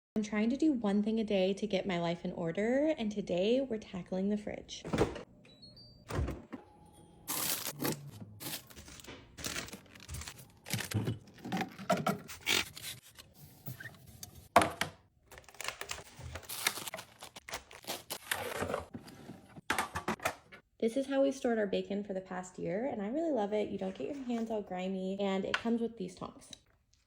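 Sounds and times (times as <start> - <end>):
packaging crinkling and tearing: 7.3 - 13.9, 15.3 - 18.9.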